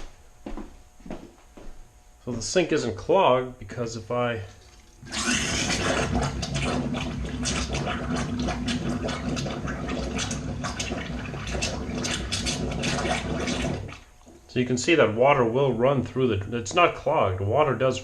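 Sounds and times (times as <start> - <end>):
water running into sink: 4.6 - 14.4.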